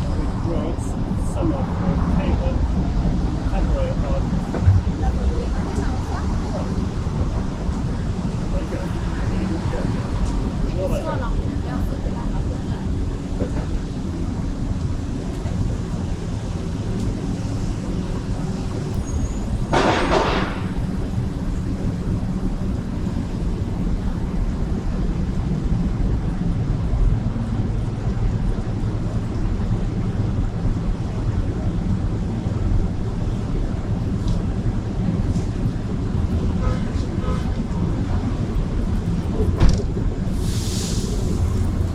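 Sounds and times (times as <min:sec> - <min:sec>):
city street traffic rumble: 0:00.0 - 0:41.9
short loud hiss: 0:40.4 - 0:41.4.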